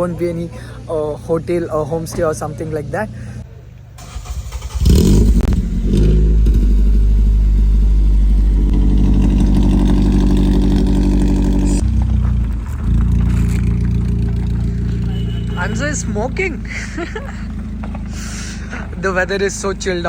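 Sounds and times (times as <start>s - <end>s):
vehicle engine running: 4.0s - 20.0s.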